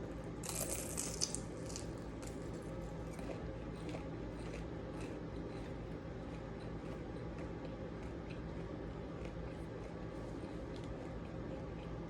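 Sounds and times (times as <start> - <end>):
steady low hum: 0.0 - 12.0
crunchy bite of fried food: 0.4 - 6.4
soft chewing clicks: 0.4 - 12.0.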